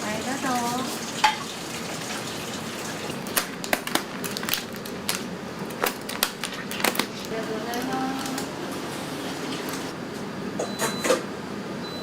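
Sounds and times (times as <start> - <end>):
water running from tap: 0.0 - 3.6, 8.7 - 9.9.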